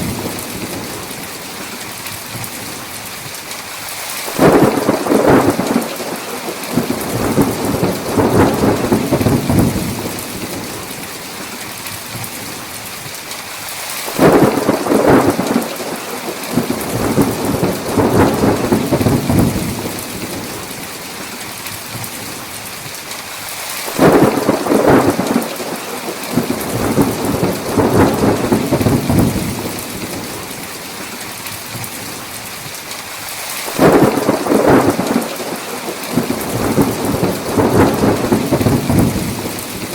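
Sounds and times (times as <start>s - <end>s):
heavy rain: 0.0s - 39.9s
rolling thunder: 4.4s - 10.8s, 14.2s - 20.6s, 24.0s - 30.5s, 33.8s - 39.9s.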